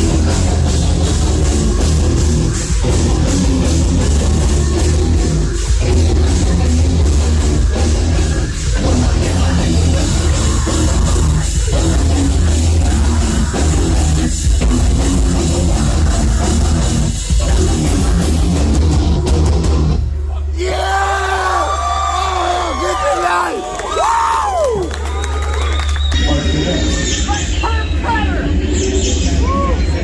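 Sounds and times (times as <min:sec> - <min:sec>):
drum kit: 0:00.0 - 0:21.1
distorted guitars: 0:00.0 - 0:22.1
bass guitar: 0:00.0 - 0:30.0.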